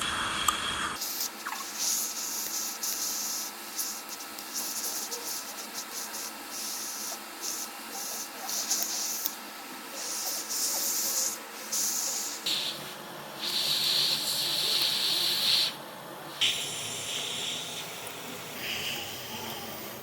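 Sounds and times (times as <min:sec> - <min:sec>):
air blower hissing: 0:00.0 - 0:20.0.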